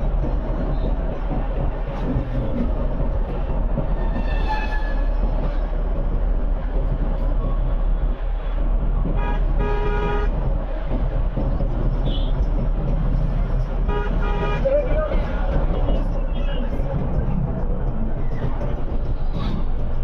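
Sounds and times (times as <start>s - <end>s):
low rumble of traffic: 0.0s - 20.0s
vehicle horns honking: 9.2s - 10.3s, 13.9s - 14.7s.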